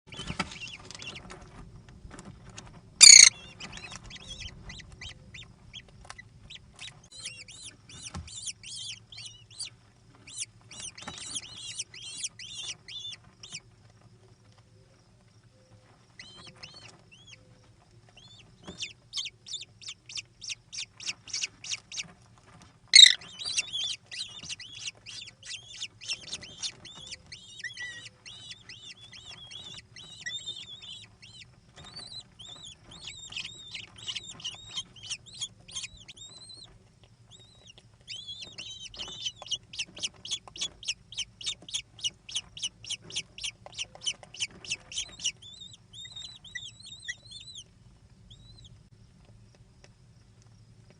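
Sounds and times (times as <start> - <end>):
kestrels giving shrill calls: 3.0 - 4.9, 23.0 - 36.7.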